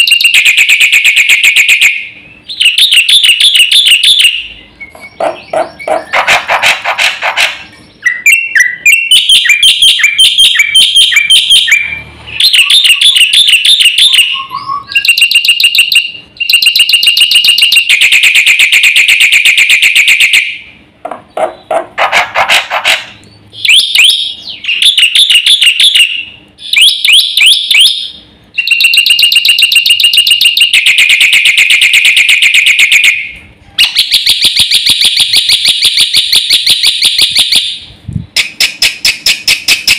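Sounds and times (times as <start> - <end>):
myna singing chattering trills: 3.8 - 15.2.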